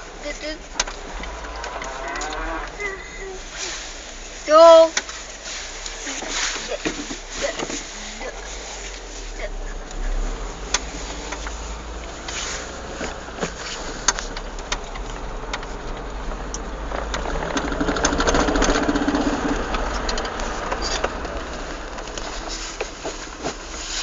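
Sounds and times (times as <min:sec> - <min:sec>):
car engine accelerating: 0:00.0 - 0:24.0
sharp clacks: 0:12.3 - 0:22.3.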